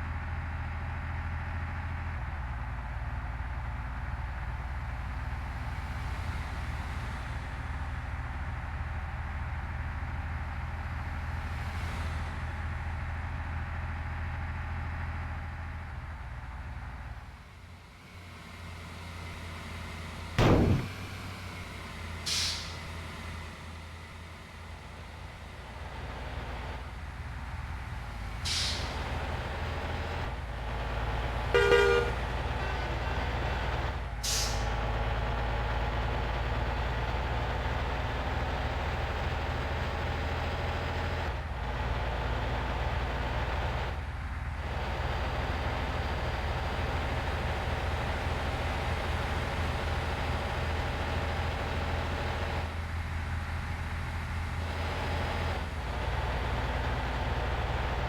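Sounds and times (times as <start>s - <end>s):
truck engine running: 0.0s - 58.0s
short air hisses: 22.3s - 22.8s, 34.2s - 34.7s
horn toot: 31.6s - 33.0s.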